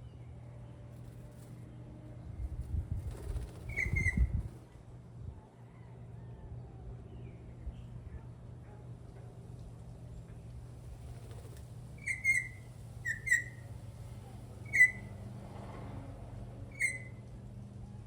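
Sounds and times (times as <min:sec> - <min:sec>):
bird whistling song: 0:03.7 - 0:04.3, 0:12.0 - 0:13.6, 0:14.7 - 0:15.1, 0:16.7 - 0:17.2.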